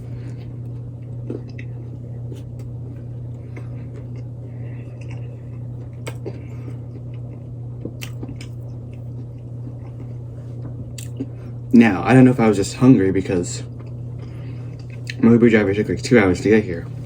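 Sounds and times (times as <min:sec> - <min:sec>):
person chewing food: 0:00.0 - 0:11.6, 0:13.7 - 0:15.2
steady low hum: 0:00.0 - 0:17.0.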